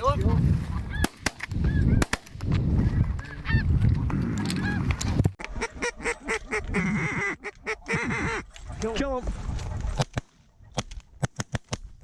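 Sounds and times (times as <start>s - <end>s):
geese honking: 4.5s - 8.6s.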